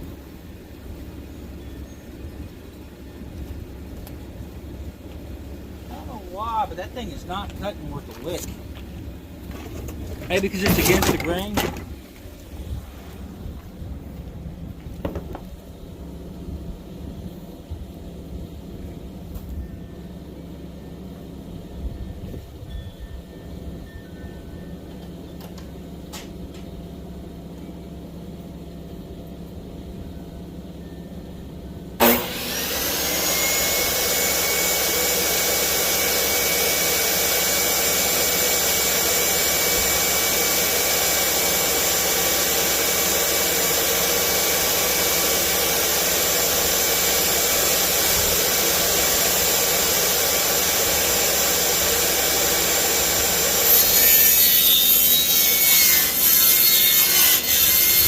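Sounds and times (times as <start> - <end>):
power tool motor whining: 32.0 - 58.0.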